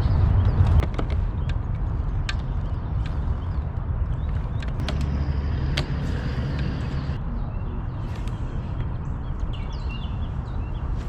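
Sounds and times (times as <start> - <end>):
motor rumbling: 4.8 - 7.2.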